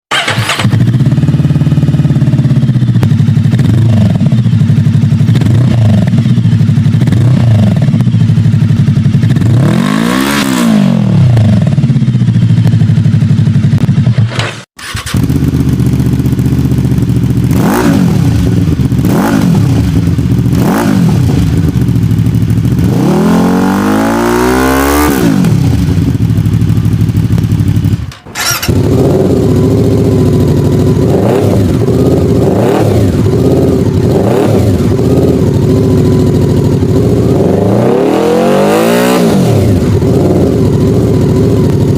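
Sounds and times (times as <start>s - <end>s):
motorcycle engine idling and revving: 0.1s - 41.9s.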